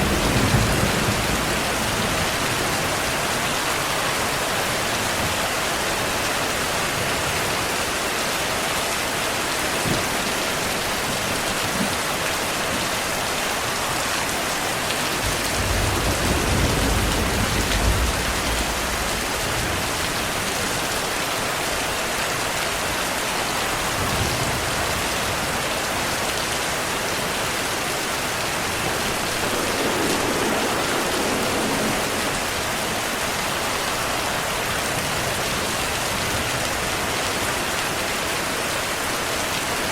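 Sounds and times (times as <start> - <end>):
thunder rumbling: 0.0 - 7.5, 15.0 - 21.2, 26.6 - 36.8
heavy rain falling: 0.0 - 39.9.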